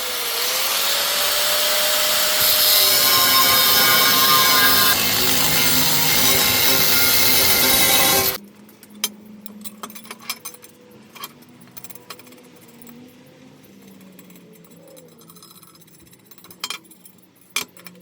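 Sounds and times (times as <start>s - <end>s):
power tool running loudly: 0.0s - 8.4s
light taps and clinks of parts: 8.6s - 18.0s.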